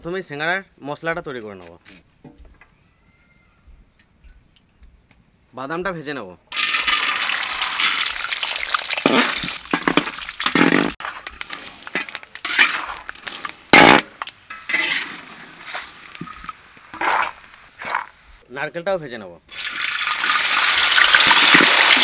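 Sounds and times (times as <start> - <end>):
peanuts sizzling in oil: 6.5 - 18.4, 19.5 - 22.0
metal ladle scraping pan: 9.0 - 18.2.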